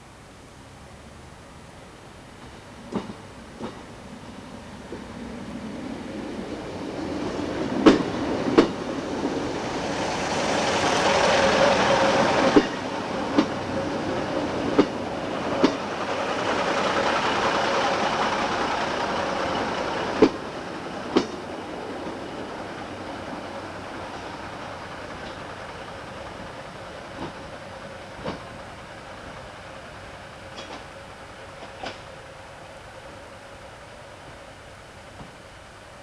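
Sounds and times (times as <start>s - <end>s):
diesel train running past: 1.4s - 36.0s
wheels clacking over rail joints: 2.4s - 4.1s, 5.8s - 25.5s, 30.5s - 30.9s.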